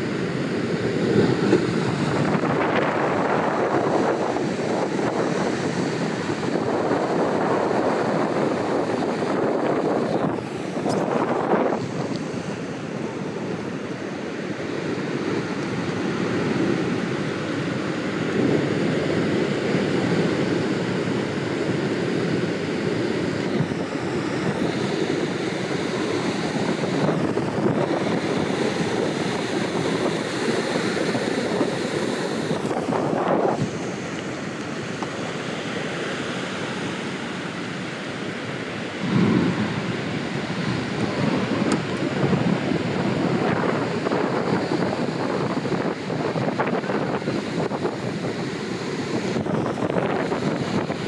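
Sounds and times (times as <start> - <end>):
ocean surf breaking: 0.0 - 51.0
wind buffeting microphone: 0.0 - 51.0.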